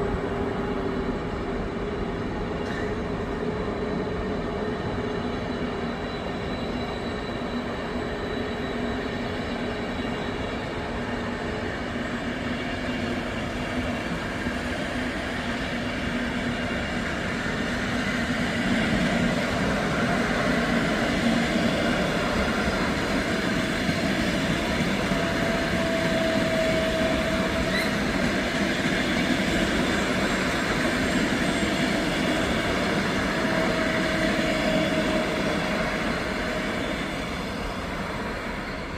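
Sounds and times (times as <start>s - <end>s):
short train squeals: 0.0s - 38.9s
train rail rumble: 0.0s - 38.9s.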